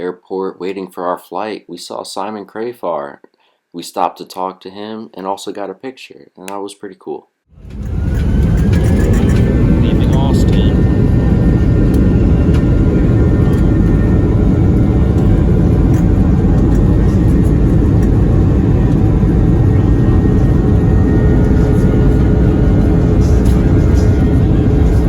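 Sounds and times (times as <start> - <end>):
jet engine and airflow rumble: 7.5 - 25.0.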